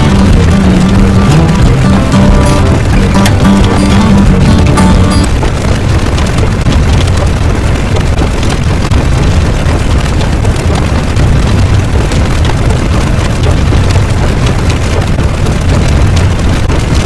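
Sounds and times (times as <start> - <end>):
loud low rumble: 0.0 - 6.0.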